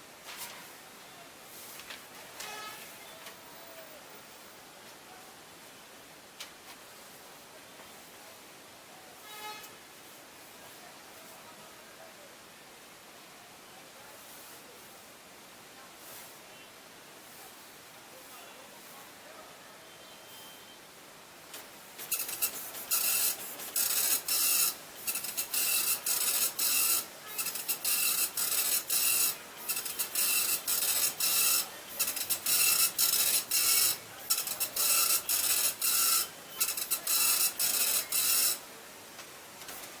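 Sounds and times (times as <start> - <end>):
dot-matrix printer printing: 21.5 - 40.0.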